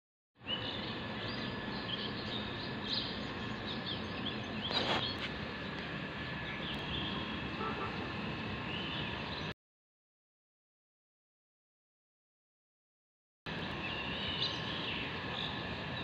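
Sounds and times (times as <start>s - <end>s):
birds chirping: 0.4s - 9.5s, 13.6s - 16.0s
outdoor background noise: 0.4s - 9.6s, 13.5s - 16.0s.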